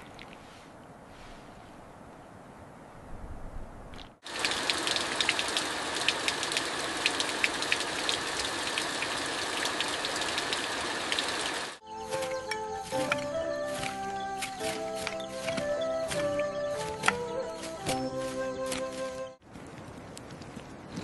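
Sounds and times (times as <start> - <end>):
rain drops ticking on a surface: 4.2 - 11.8.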